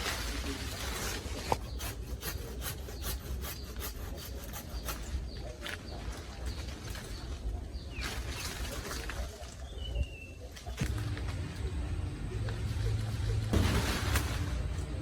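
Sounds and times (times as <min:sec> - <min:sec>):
hand saw cutting wood: 0:00.8 - 0:05.6.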